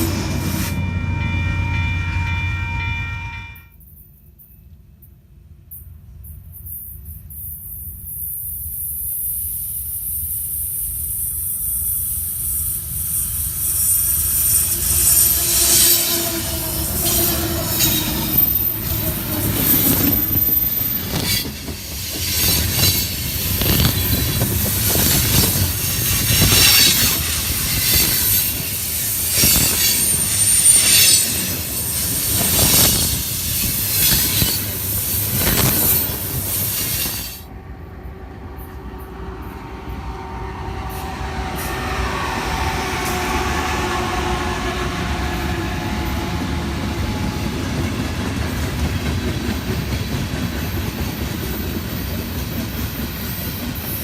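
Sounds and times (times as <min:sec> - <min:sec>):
train passing: 0:00.0 - 0:54.0
high-pitched wheel squeals: 0:13.6 - 0:21.5, 0:22.3 - 0:37.4
wheels clacking over rail joints: 0:17.1 - 0:37.2.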